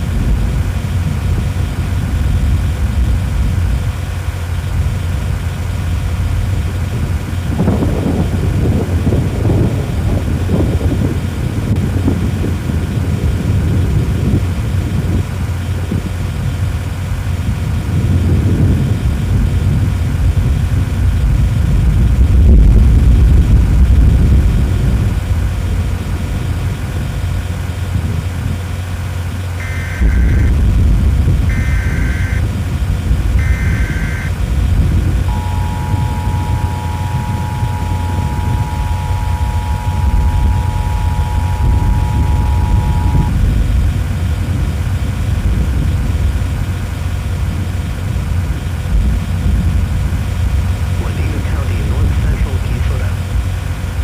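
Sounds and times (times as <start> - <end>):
vehicle engine and road rumble: 0.0 - 54.0
two-tone attention signal: 29.6 - 30.6, 31.4 - 32.4, 33.4 - 34.4, 35.3 - 43.4, 51.0 - 53.1
warbling data bursts: 29.6 - 30.7, 31.4 - 32.5, 33.4 - 34.4, 35.3 - 43.4.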